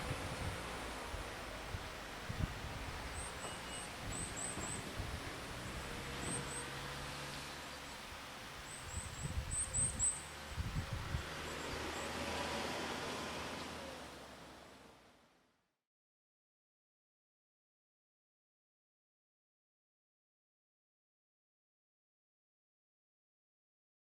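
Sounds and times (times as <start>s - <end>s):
low bumps: 0.0s - 7.6s
small bird chirping: 2.9s - 5.3s, 6.2s - 12.2s.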